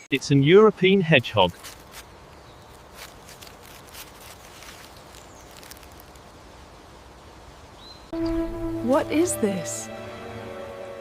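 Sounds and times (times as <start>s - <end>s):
hedgehog rustling and snuffling: 1.2s - 6.3s.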